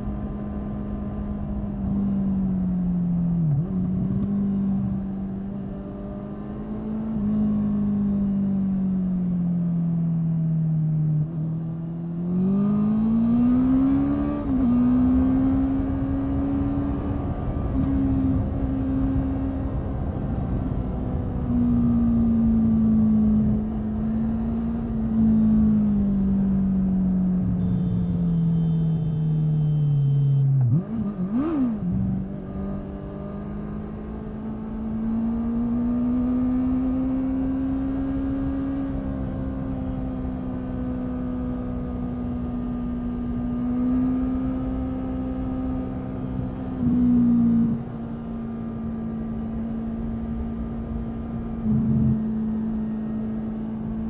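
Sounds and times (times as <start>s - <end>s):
wind and road noise: 0.0s - 54.0s
motorcycle engine revving: 11.4s - 54.0s.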